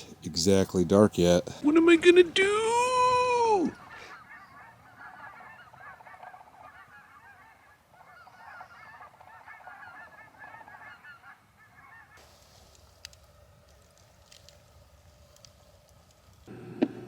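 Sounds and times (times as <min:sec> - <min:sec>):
flock of geese honking: 0:01.7 - 0:12.3.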